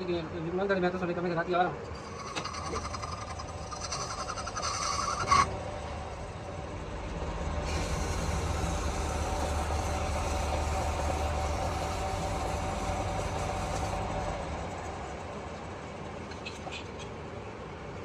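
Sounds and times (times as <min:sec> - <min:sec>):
lathe humming: 0:01.8 - 0:06.2, 0:07.6 - 0:14.9.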